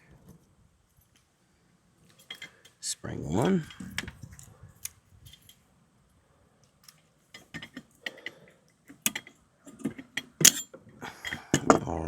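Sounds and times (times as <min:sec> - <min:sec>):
metal spring clicking: 0:10.4 - 0:10.7.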